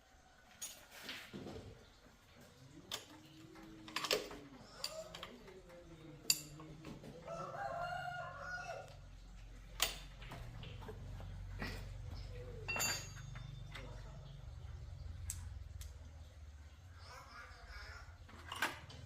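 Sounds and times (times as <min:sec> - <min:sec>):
metallic tool clicks and knocks: 0:06.2 - 0:07.0
rooster crowing: 0:07.2 - 0:09.1.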